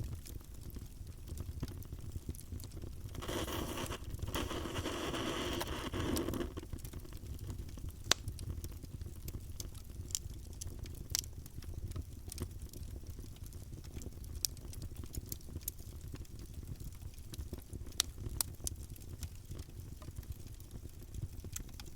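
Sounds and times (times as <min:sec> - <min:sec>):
campfire crackling and popping: 0:00.0 - 0:21.9
low steady fire rumble: 0:00.0 - 0:21.9
rush of hissing noise: 0:03.2 - 0:06.5.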